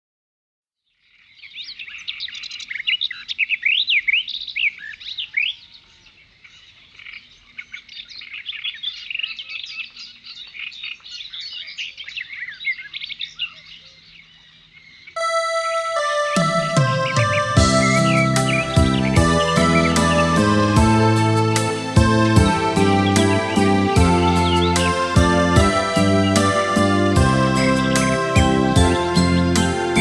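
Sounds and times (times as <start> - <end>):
small birds chirping: 17.7 - 28.2.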